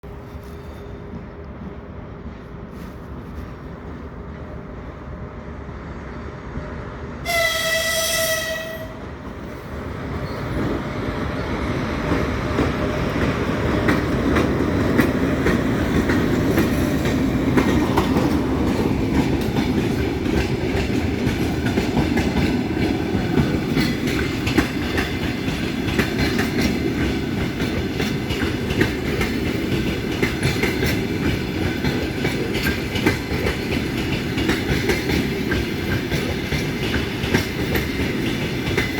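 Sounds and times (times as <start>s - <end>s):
train rolling by: 0.0s - 38.9s
locomotive whistle: 7.2s - 9.0s
wheels clicking over rail joints: 12.0s - 38.9s.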